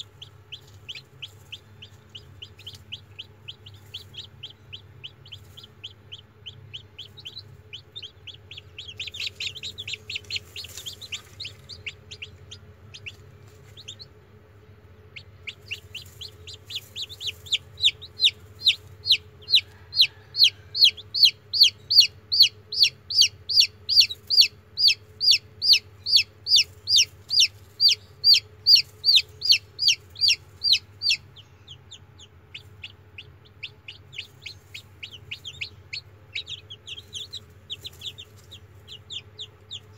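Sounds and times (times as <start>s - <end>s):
chicks peeping: 0.0s - 39.9s
faint low hum: 0.0s - 39.9s.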